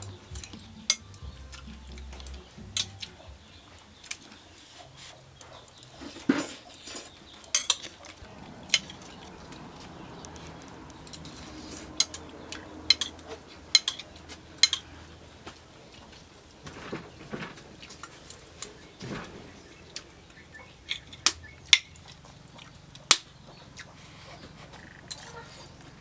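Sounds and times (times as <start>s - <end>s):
cutlery clinking against dishes: 0.0s - 15.2s, 25.0s - 25.7s.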